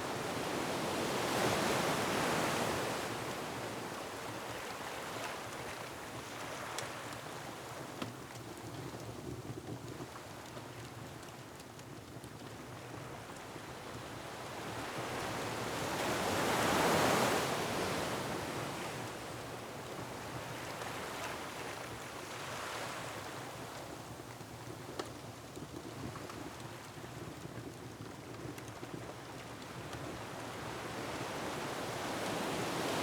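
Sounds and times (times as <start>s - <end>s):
faint fireplace crackles: 3.3s - 15.4s, 19.5s - 32.0s.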